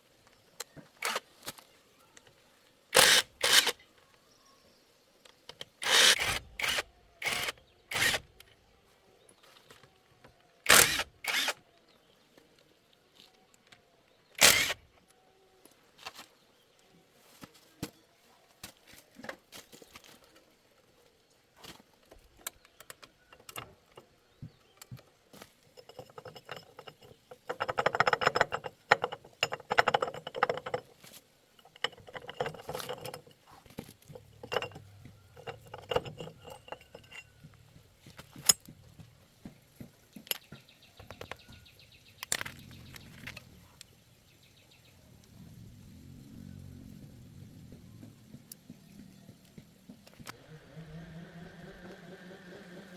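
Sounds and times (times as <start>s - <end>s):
metal parts clinking and scraping: 3.0s - 3.8s, 5.8s - 8.5s, 14.4s - 14.8s, 22.5s - 24.1s, 24.8s - 38.7s, 42.2s - 43.9s
metal tools knocking: 25.7s - 38.9s.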